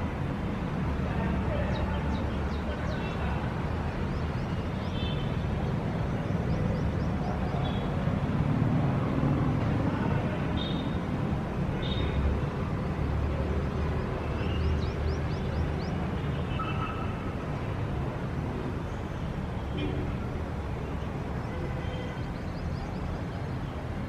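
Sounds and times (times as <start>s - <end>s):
traffic rumble: 0.0s - 24.0s
small birds chirping: 11.8s - 16.2s.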